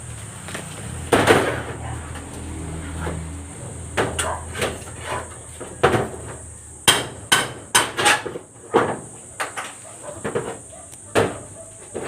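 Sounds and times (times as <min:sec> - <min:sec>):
hammer striking wood: 0:06.8 - 0:08.2.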